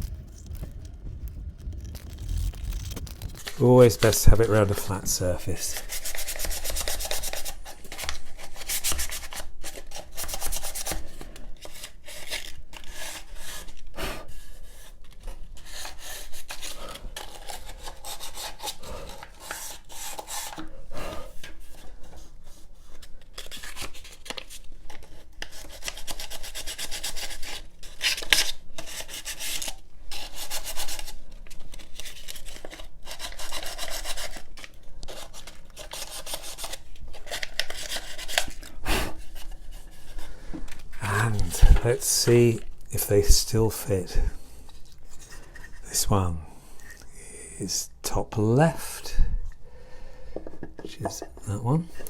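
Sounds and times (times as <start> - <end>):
sandpaper rubbing wood: 5.6 - 11.0, 35.1 - 40.0.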